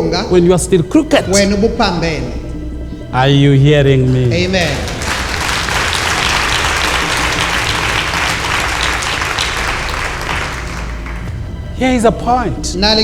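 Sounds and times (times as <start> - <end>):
congregation applauding: 4.0 - 11.8.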